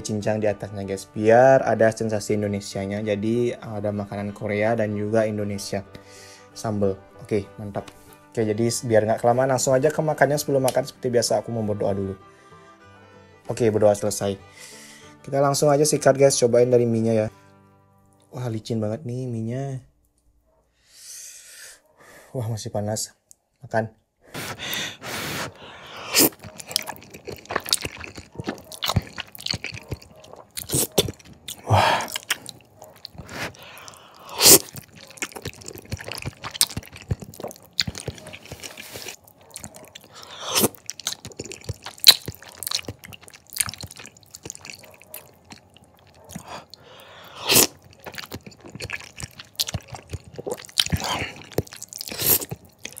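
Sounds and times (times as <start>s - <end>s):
chewing and slurping noodles: 24.4s - 53.0s.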